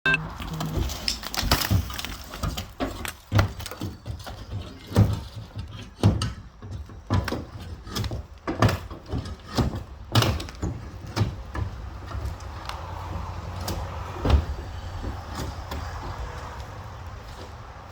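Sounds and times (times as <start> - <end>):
boards breaking and falling: 0.5 - 12.6.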